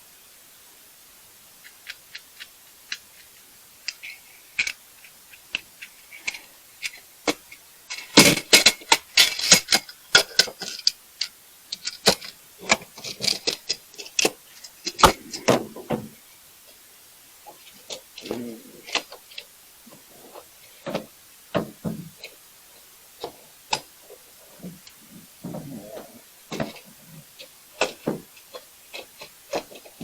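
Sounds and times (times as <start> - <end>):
hard objects clattering: 11.8 - 16.2, 23.2 - 30.0.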